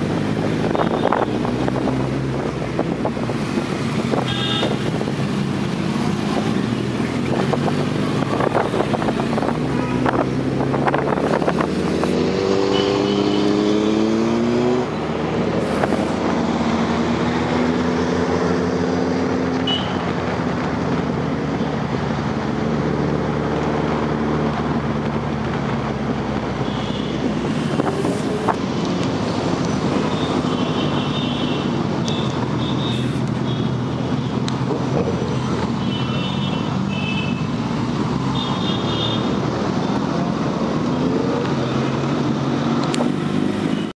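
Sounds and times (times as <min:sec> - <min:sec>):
motorcycle engine revving: 0:00.0 - 0:20.0
road and wind noise: 0:00.0 - 0:43.9.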